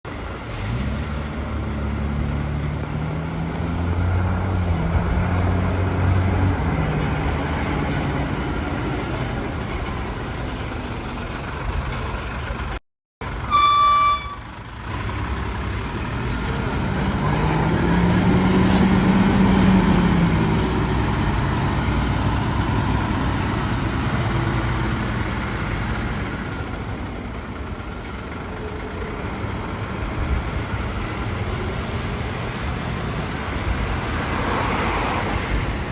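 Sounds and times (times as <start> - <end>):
fire engine engine running: 0.1 - 34.6
loud horn blast: 13.5 - 14.5.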